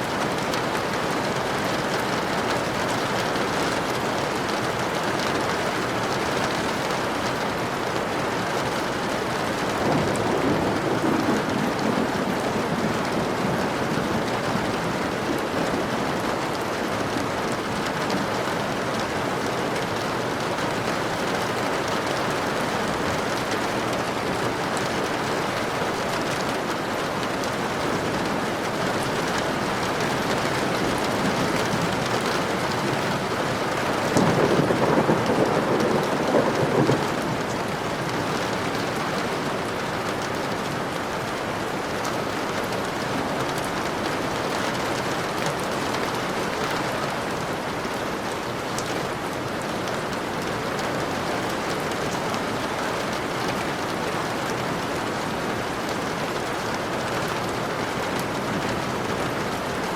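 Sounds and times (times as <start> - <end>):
dense rainfall: 0.0 - 59.9
thunder rumble: 9.8 - 16.2, 27.5 - 39.7.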